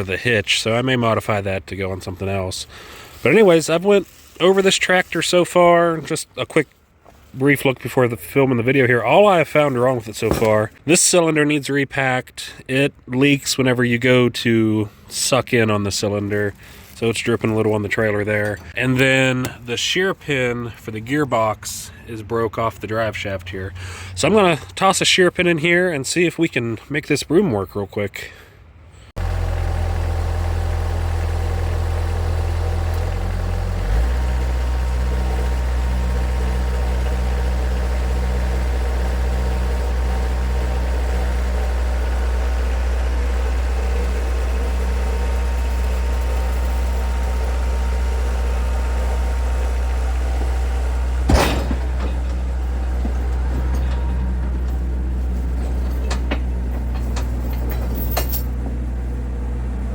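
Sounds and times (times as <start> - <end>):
diesel tractor engine running: 0.0 - 5.7, 29.1 - 59.9.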